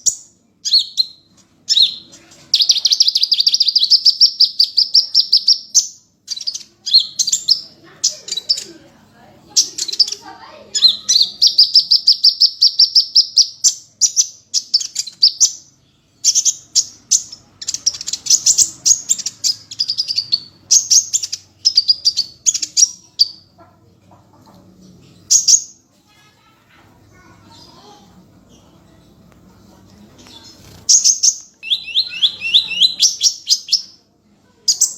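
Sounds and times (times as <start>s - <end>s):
bird singing high chirps: 0.0s - 8.6s, 30.3s - 34.0s.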